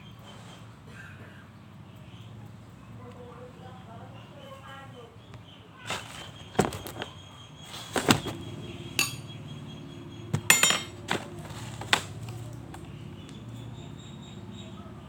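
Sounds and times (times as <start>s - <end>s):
utensil clinking against plate: 9.0s - 9.4s, 10.4s - 11.2s.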